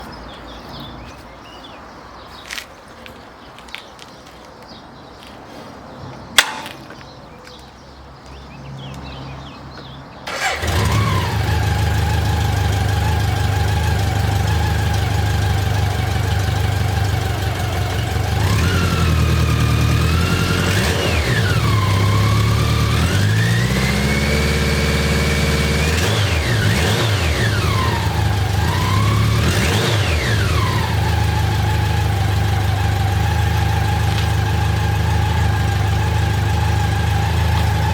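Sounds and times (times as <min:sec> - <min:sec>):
sharp click: 0:06.4 - 0:07.0
motorcycle engine idling: 0:10.3 - 0:37.9
motorcycle engine revving: 0:10.3 - 0:37.9.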